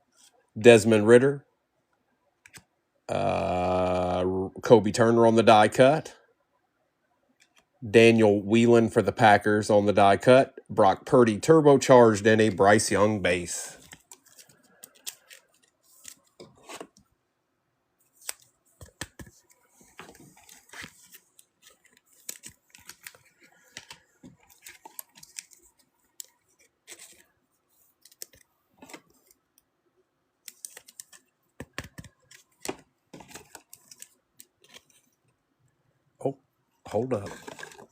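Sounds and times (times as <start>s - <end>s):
trading cards being handled: 12.4s - 17.1s, 18.0s - 29.6s, 30.4s - 35.2s, 37.0s - 37.9s.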